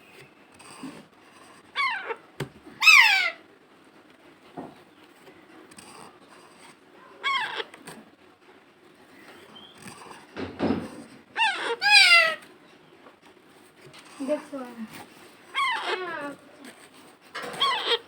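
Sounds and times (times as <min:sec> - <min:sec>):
parrot squawking: 0:01.8 - 0:02.2, 0:02.8 - 0:03.4, 0:07.2 - 0:07.7, 0:11.4 - 0:12.4, 0:15.5 - 0:16.4, 0:17.4 - 0:18.0.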